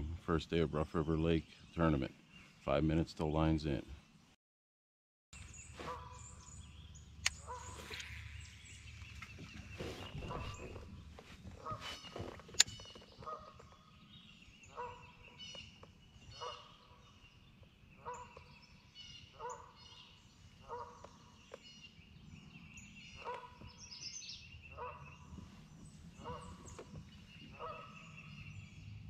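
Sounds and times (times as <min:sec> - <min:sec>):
large bird calling: 0:05.4 - 0:28.9
small birds chirping faintly: 0:05.4 - 0:29.0.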